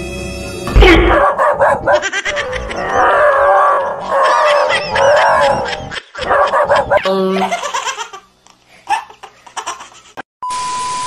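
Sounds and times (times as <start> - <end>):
dog yelping and squealing: 1.1 - 7.0, 8.9 - 9.3.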